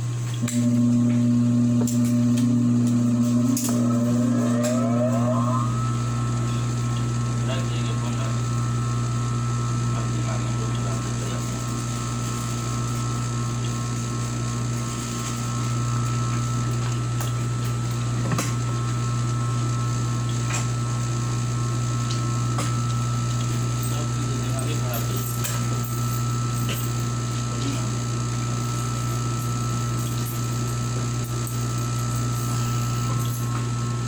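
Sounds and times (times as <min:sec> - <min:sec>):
sewing machine motor hum: 0:00.0 - 0:13.6.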